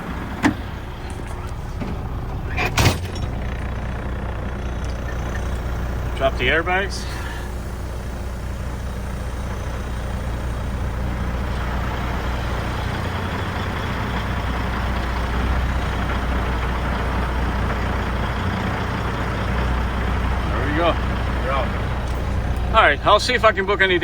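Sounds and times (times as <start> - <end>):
diesel engine idling: 0.0 - 24.0
air hissing from suspension: 5.0 - 13.0.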